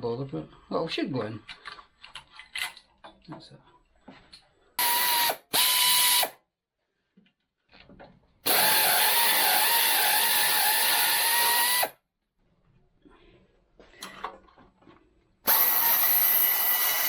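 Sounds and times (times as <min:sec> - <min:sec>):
power tool motor whine: 0:04.8 - 0:06.4, 0:08.5 - 0:11.9, 0:15.5 - 0:17.0.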